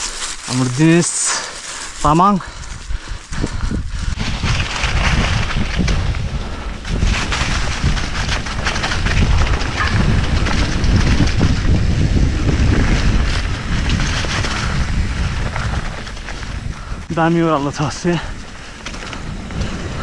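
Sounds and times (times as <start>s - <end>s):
wind buffeting microphone: 0.0s - 20.0s
bike knocking and rattling: 1.7s - 20.0s
heavy low rumble: 2.6s - 20.0s.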